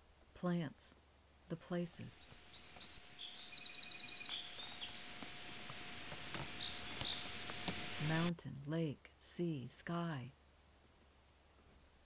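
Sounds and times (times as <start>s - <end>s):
steady background hiss: 0.0s - 12.0s
birds chirping: 1.9s - 8.3s
bird trill: 2.2s - 5.1s, 6.4s - 8.3s.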